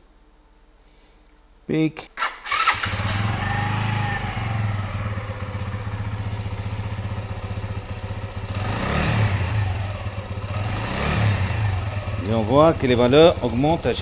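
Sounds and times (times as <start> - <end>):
single-cylinder engine idling and revving: 2.5 - 14.0.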